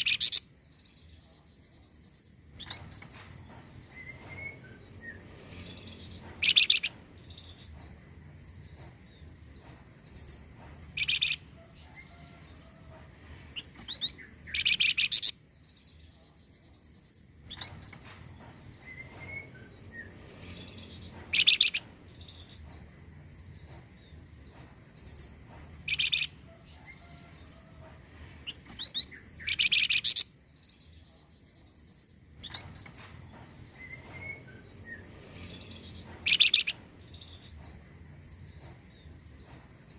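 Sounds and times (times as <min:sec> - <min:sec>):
bird high chattering song: 0:00.0 - 0:00.5, 0:03.9 - 0:07.6, 0:11.0 - 0:11.4, 0:13.6 - 0:15.4, 0:18.8 - 0:22.6, 0:25.1 - 0:26.4, 0:28.4 - 0:30.4, 0:33.8 - 0:37.5.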